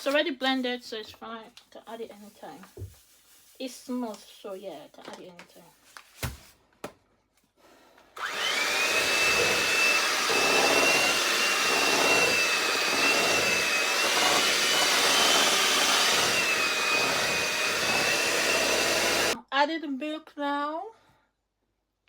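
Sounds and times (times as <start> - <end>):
electric mixer motor whine: 8.2 - 19.4.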